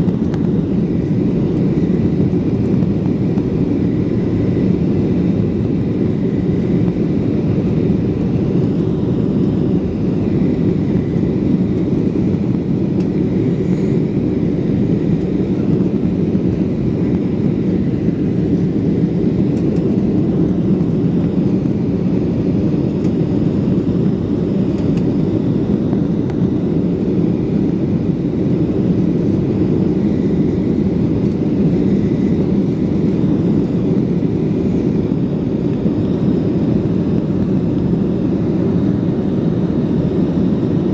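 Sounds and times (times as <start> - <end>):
airliner cabin engine rumble: 0.0 - 40.9.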